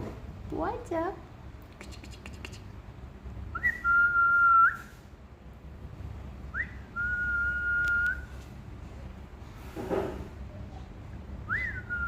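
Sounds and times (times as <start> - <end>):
parrot whistling: 3.5 - 4.9, 6.5 - 8.4.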